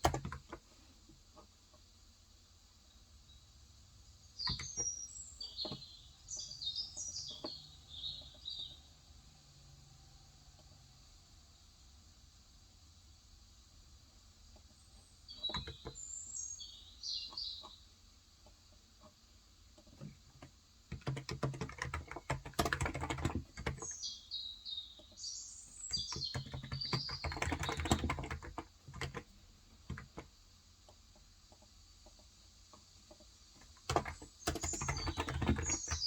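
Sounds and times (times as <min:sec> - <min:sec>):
keyboard typing: 0:00.0 - 0:00.6, 0:04.4 - 0:05.8, 0:15.4 - 0:16.0, 0:19.8 - 0:24.0, 0:25.9 - 0:30.3, 0:33.1 - 0:36.0
small bird chirping: 0:02.8 - 0:09.2, 0:14.4 - 0:19.2, 0:19.8 - 0:30.3, 0:31.4 - 0:36.0.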